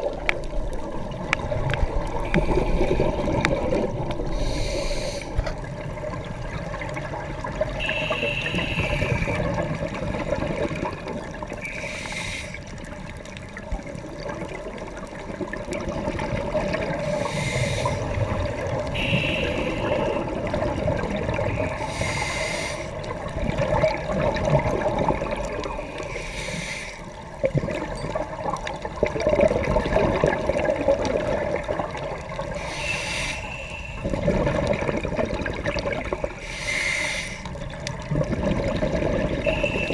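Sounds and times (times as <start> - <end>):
bubbly rumbling exhalations: 0.0 - 7.6, 23.0 - 26.0, 27.3 - 32.5, 34.0 - 36.4, 37.6 - 39.9
hissing regulator inhalations: 4.2 - 5.4, 7.8 - 9.5, 11.6 - 12.7, 17.0 - 18.2, 19.0 - 20.3, 21.6 - 23.0, 25.9 - 27.1, 32.5 - 34.2, 36.4 - 37.6.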